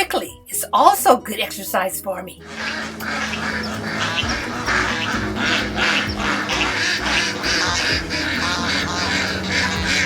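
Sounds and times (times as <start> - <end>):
duck quacking rapidly: 2.4 - 10.0.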